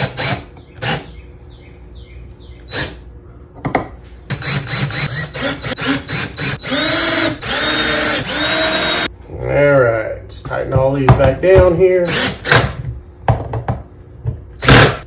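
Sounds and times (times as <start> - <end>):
drill clicks: 4.3 - 9.1, 12.1 - 12.8
power drill driving screws: 4.3 - 9.1, 12.1 - 12.8.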